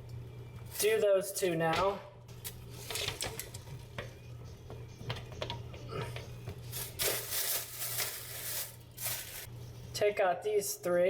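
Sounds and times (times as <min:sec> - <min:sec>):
steady low hum: 0:03.6 - 0:10.9.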